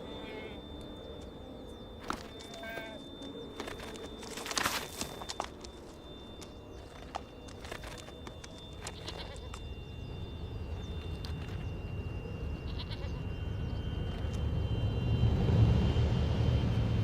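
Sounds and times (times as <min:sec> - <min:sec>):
hooves clicking on stone: 0:02.0 - 0:09.7
ibex bleating: 0:02.5 - 0:03.0, 0:12.7 - 0:13.2
low rumble: 0:09.8 - 0:17.0.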